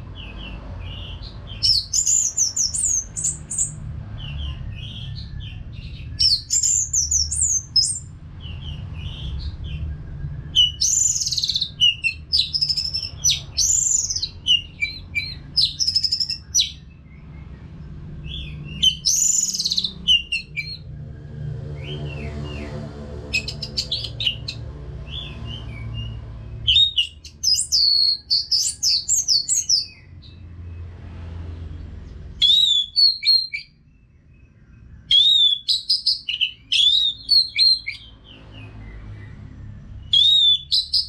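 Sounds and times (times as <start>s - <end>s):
bird singing whistled phrases: 1.6s - 3.8s, 4.8s - 8.1s, 10.2s - 16.8s, 18.4s - 20.8s, 23.4s - 30.0s, 32.4s - 33.8s, 35.1s - 38.1s, 40.0s - 41.0s.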